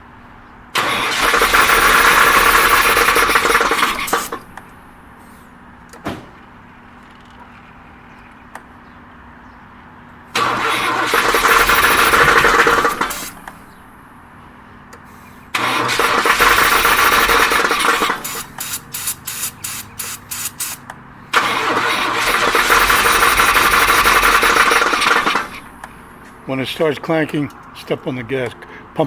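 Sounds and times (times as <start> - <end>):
car starter cranking: 0.8 - 5.2, 10.3 - 14.3, 14.9 - 26.8.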